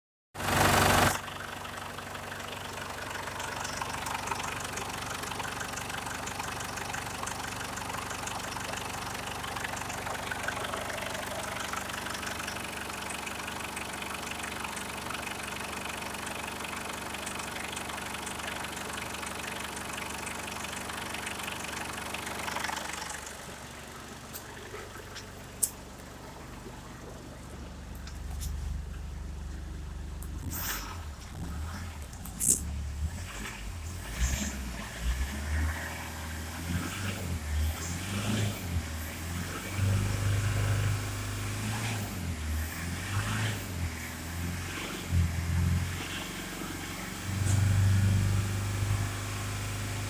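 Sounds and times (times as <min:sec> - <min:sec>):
diesel engine idling: 0:00.4 - 0:50.0
short loud engine burst: 0:30.4 - 0:35.9.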